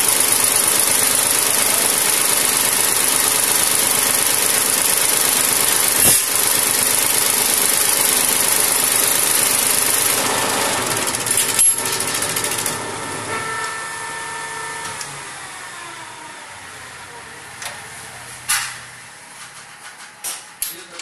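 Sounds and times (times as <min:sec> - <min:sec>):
diesel tractor engine running: 0:00.0 - 0:16.0
clatter: 0:02.1 - 0:12.8
sharp click: 0:06.0 - 0:06.3.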